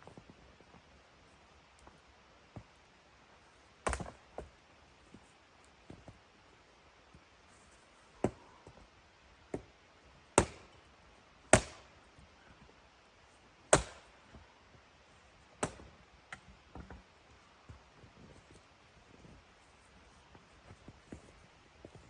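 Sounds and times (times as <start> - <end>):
wood chopping strikes: 3.8 - 4.5, 8.2 - 8.4, 10.4 - 10.8, 11.5 - 11.9, 13.7 - 14.2, 15.6 - 15.9.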